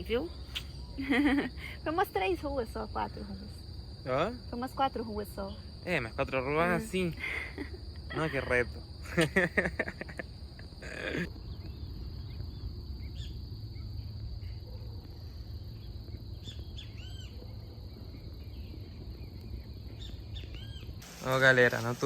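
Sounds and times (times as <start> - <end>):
crickets trilling: 0.0 - 22.0
bird chirps: 0.3 - 1.1, 18.1 - 22.0.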